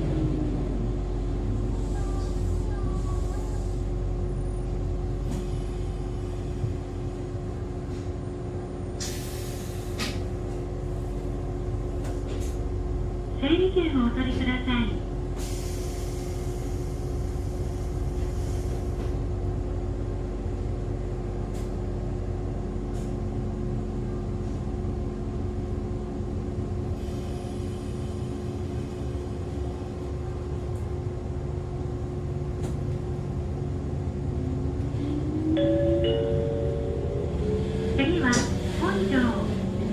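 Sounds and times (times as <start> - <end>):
railcar equipment hum: 0.0 - 39.9
air hissing: 9.0 - 10.3, 15.4 - 19.2.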